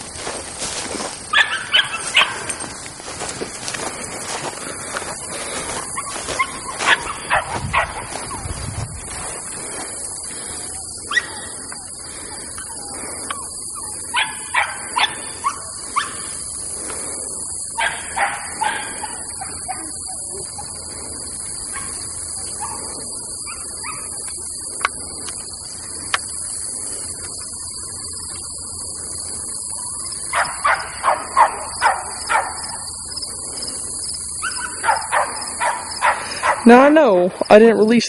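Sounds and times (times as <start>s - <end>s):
high-pitched hiss: 0.0s - 38.0s
dog barking and yipping: 1.3s - 2.8s, 5.9s - 8.6s, 11.1s - 11.6s, 12.6s - 16.3s, 17.8s - 20.8s, 21.7s - 24.2s, 30.3s - 32.9s, 34.4s - 36.7s.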